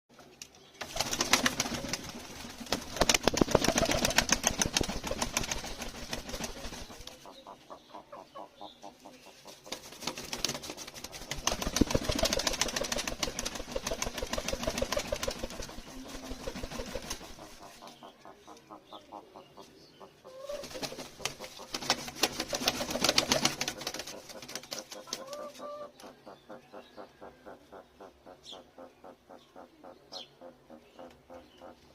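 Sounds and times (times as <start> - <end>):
bird rapid clicking: 0.8 - 7.2, 9.7 - 18.6, 20.5 - 26.2.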